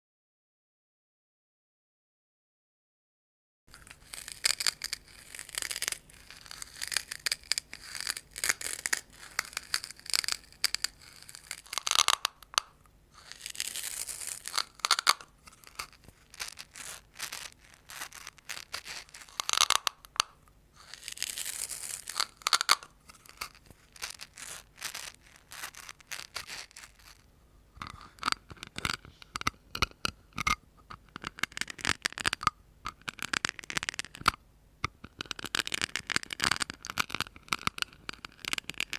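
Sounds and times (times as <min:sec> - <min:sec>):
scratching strokes: 0:03.7 - 0:29.6.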